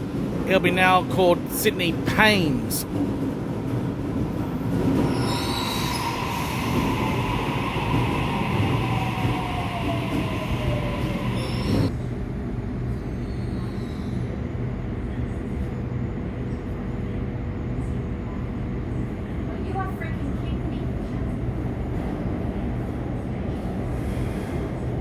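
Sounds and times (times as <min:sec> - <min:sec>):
train wheels squealing on rails: 0:04.9 - 0:12.0, 0:12.8 - 0:14.6.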